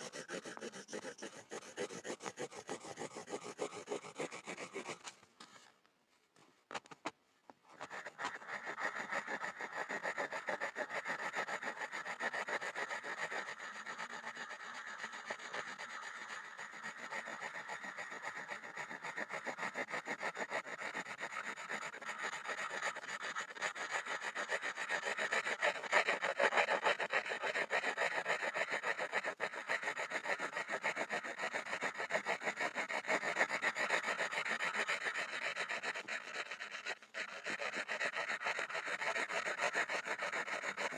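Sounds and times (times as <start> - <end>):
pencil scribbling on wood: 0.0 - 5.8, 7.7 - 40.9.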